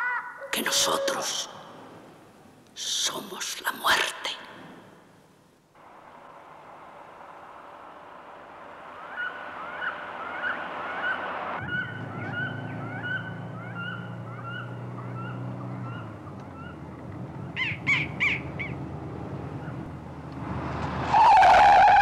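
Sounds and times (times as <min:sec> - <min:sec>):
car engine running: 0:05.8 - 0:21.1.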